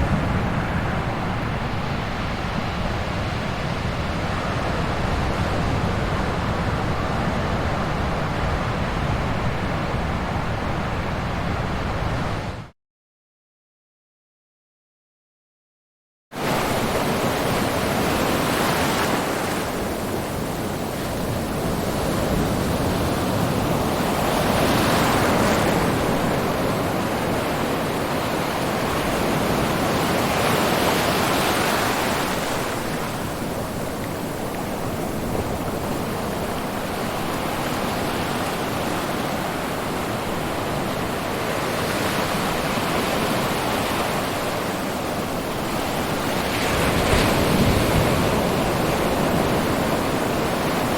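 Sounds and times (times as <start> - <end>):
ocean waves breaking: 16.4 - 50.9.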